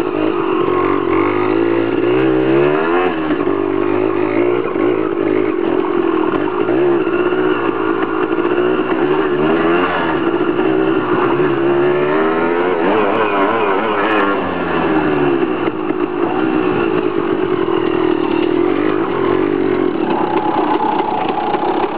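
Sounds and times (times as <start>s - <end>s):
dirt bike engine revving: 0.0s - 21.9s.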